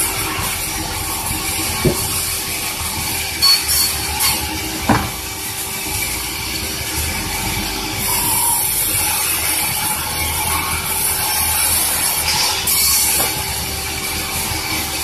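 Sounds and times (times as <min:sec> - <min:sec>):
sawmill saw cutting log: 0:00.0 - 0:15.0
sharp knocks: 0:01.8 - 0:02.1, 0:04.9 - 0:05.2.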